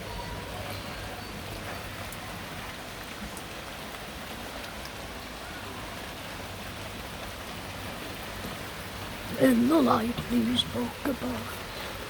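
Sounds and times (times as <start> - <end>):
heavy rain pattering: 0.0 - 12.0.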